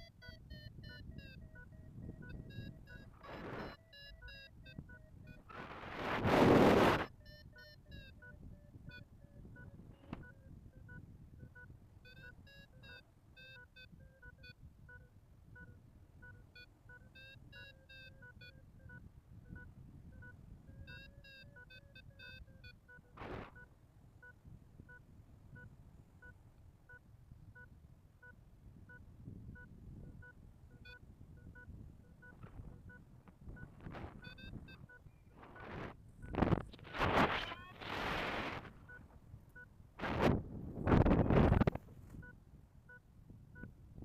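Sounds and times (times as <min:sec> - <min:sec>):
variometer beeping: 0:00.0 - 0:05.5, 0:06.6 - 0:27.0, 0:27.6 - 0:39.7
wind rumbling on microphone: 0:00.7 - 0:07.2, 0:07.8 - 0:12.8, 0:17.3 - 0:21.6, 0:27.3 - 0:44.0.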